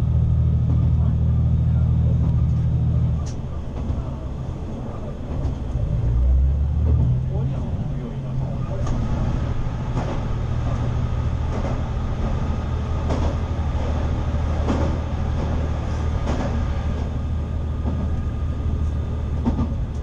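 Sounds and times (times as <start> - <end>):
railcar engine drone: 0.0 - 20.0
wheels rumbling on rail: 0.0 - 20.0
wheels clacking on rail joints: 8.6 - 20.0.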